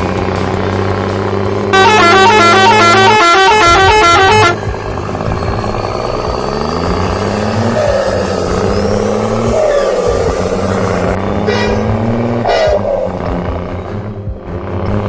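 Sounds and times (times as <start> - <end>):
bus engine drone revving: 0.0 - 15.0
musical bus horn tune: 0.4 - 7.7, 11.3 - 15.0.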